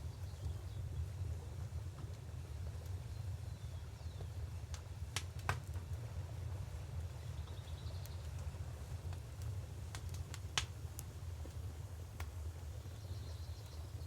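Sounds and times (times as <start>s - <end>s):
wood fire crackling: 0.0s - 14.0s
sharp pops of fire: 4.2s - 6.0s, 9.0s - 12.6s.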